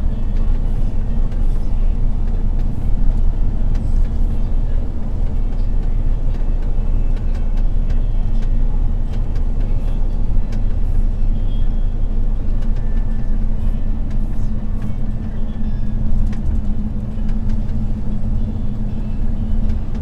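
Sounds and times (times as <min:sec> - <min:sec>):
truck diesel engine droning: 0:00.0 - 0:20.0
light clicks and rattles: 0:14.0 - 0:20.0.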